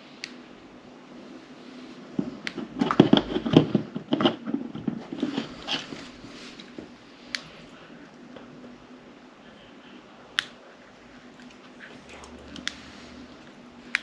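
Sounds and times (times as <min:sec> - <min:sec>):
faint steady hum: 0:00.0 - 0:14.0
sharp plastic clicks: 0:00.2 - 0:00.4.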